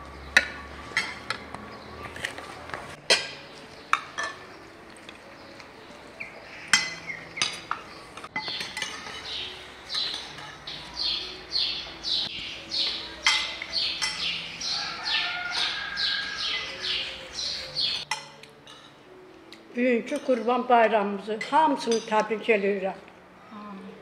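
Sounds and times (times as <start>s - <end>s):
forks clinking against plates: 0.4s - 1.4s, 3.0s - 5.2s, 6.6s - 10.8s, 13.2s - 14.8s, 18.0s - 19.0s
bird chirping: 3.4s - 18.2s.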